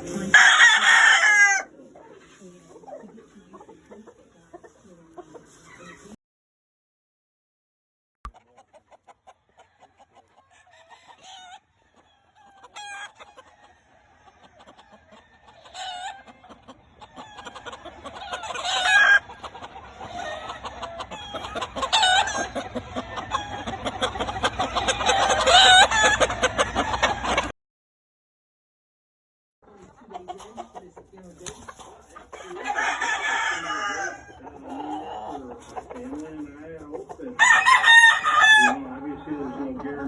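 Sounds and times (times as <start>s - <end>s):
roosters crowing and clucking: 0.0s - 6.2s, 8.3s - 27.5s, 29.6s - 40.0s.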